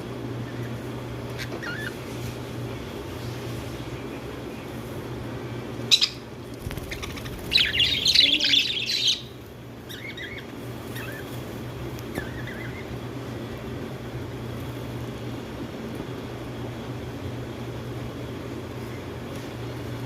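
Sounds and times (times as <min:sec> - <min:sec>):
soft bird chirps: 0:05.8 - 0:11.4, 0:12.0 - 0:13.0.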